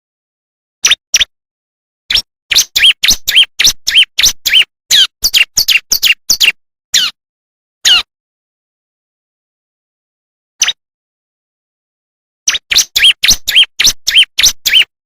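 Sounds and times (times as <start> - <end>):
bird chirping sharp notes: 2.1 - 7.2, 12.5 - 15.0.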